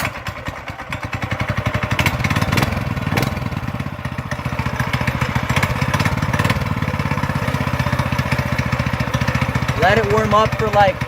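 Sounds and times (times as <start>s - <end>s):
small motorbike engine running: 0.0s - 11.0s.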